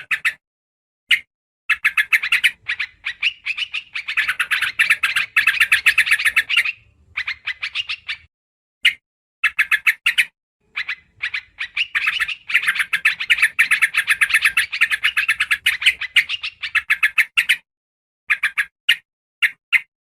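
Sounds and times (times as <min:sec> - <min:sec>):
bulbul chattering calls: 0:01.7 - 0:08.3, 0:09.4 - 0:17.6.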